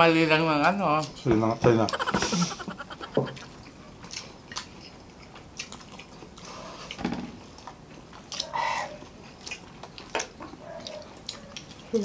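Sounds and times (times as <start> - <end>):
people chewing food: 0.6 - 12.0
mouth clicks and smacks: 1.9 - 3.5.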